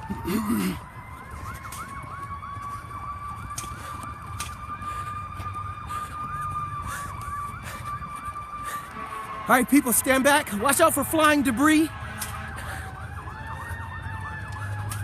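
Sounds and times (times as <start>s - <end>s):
siren wailing: 0.0s - 15.0s
siren yelping: 0.0s - 15.0s.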